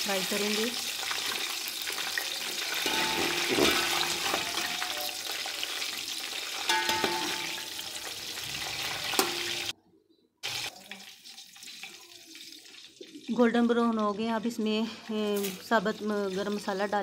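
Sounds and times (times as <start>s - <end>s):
food sizzling in hot oil: 0.0s - 9.7s, 10.4s - 13.8s, 15.2s - 17.0s
metal spoon scraping a pot: 2.7s - 4.8s.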